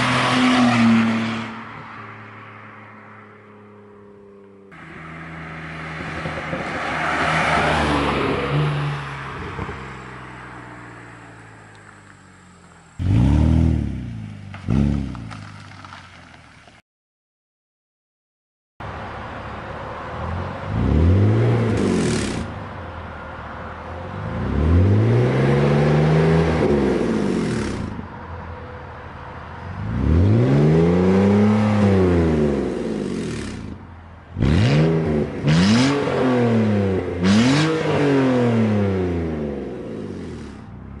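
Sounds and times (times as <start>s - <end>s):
car engine revving: 11.2s - 16.0s, 20.2s - 22.7s, 24.1s - 28.1s, 29.7s - 41.0s.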